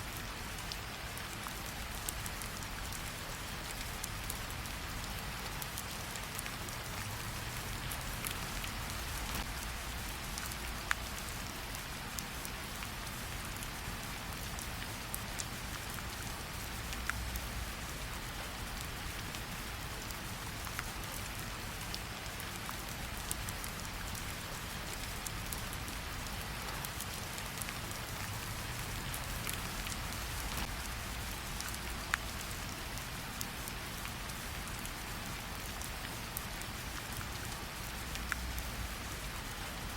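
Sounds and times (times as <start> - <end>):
steady rain falling: 0.0 - 39.9
wood fire crackling: 5.7 - 11.4.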